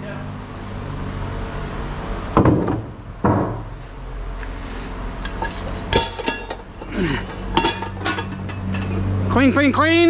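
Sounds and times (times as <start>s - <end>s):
heavy metal clunks: 2.4s - 3.8s.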